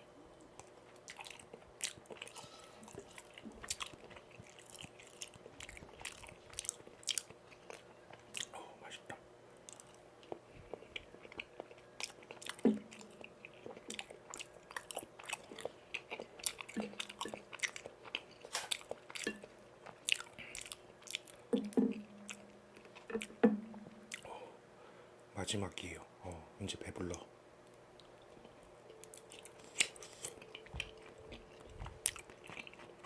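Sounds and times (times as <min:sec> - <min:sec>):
chewing with wet mouth clicks: 0:00.4 - 0:08.6, 0:09.6 - 0:23.5, 0:24.1 - 0:24.3, 0:28.0 - 0:33.0
biting and swallowing: 0:00.6 - 0:08.6, 0:28.0 - 0:33.0.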